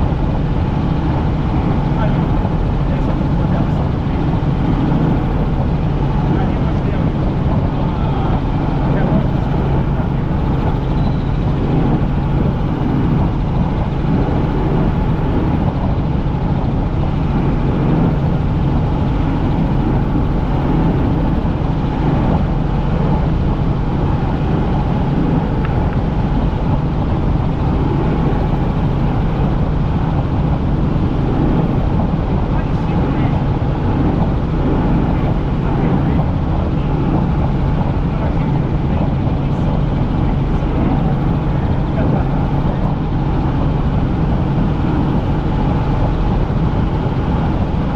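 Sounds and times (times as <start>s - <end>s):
helicopter rotor and engine drone: 0.0s - 47.9s.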